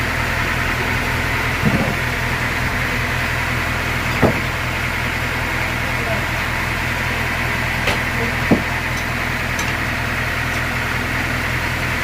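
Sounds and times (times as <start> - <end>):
engine idling: 0.0 - 12.0
short knocks: 4.2 - 4.5, 7.9 - 8.7.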